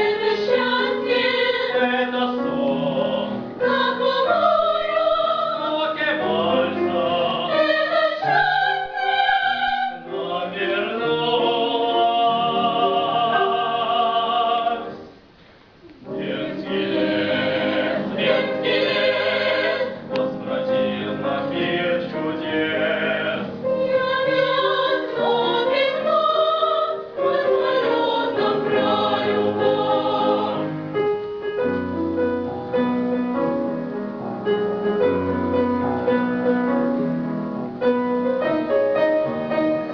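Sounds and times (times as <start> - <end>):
vocal ensemble singing operatically: 0.0 - 15.1, 16.0 - 30.9
musical accompaniment: 0.0 - 39.9.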